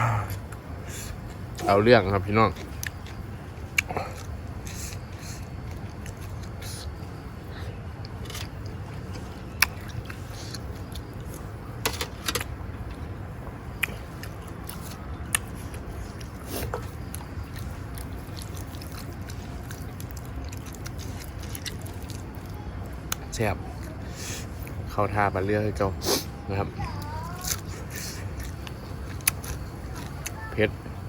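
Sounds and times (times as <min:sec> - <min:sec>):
steady low hum: 0:00.0 - 0:31.0
person chewing food: 0:02.6 - 0:07.3, 0:08.0 - 0:11.5, 0:13.8 - 0:23.2, 0:27.3 - 0:30.4
sharp clicks and crunches: 0:27.4 - 0:30.4.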